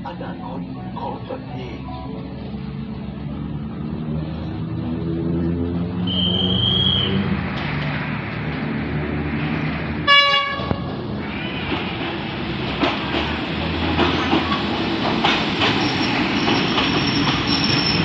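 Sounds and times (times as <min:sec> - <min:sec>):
train rumble: 0:00.0 - 0:18.0
high wheel squeal: 0:06.0 - 0:07.3, 0:15.7 - 0:18.0
train horn blast: 0:10.0 - 0:12.0
wheels clacking over rail joints: 0:10.5 - 0:18.0.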